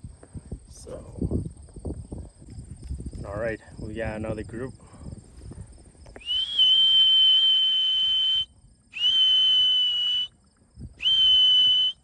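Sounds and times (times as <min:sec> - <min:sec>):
whistle blasts: 0:06.2 - 0:10.4, 0:11.0 - 0:12.0.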